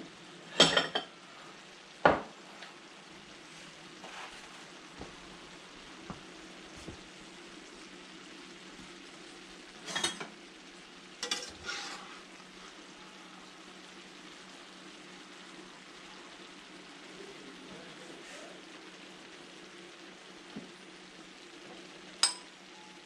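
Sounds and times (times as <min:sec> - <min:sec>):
food sizzling in a skillet: 0:00.0 - 0:23.0
utensil scraping and stirring food: 0:03.4 - 0:05.2, 0:09.7 - 0:10.4, 0:11.2 - 0:13.0.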